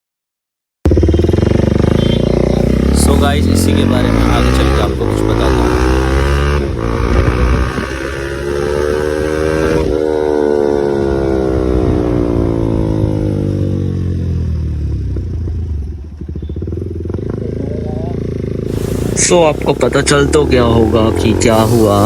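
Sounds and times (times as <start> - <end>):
motorcycle engine revving: 0.8 - 22.0.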